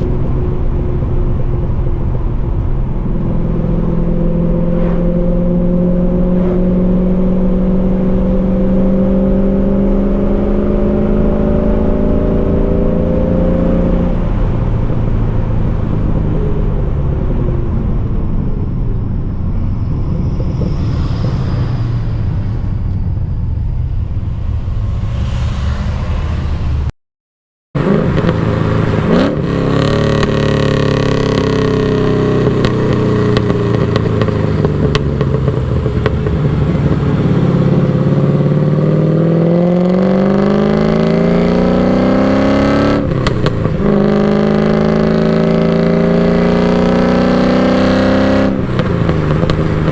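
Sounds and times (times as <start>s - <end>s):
car engine revving: 0.0s - 16.9s, 27.8s - 49.9s.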